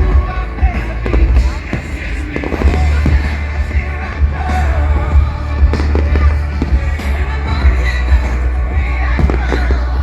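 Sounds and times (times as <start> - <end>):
deep low rumble: 0.0 - 10.0
fireworks banging: 0.0 - 10.0
loud music playing: 0.0 - 10.0.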